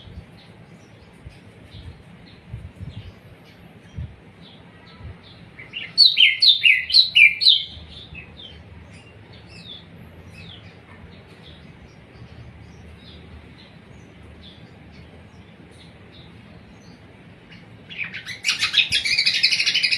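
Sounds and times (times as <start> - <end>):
rapid burst of birdsong: 0.0 - 19.9
songbird chirping: 0.0 - 19.9.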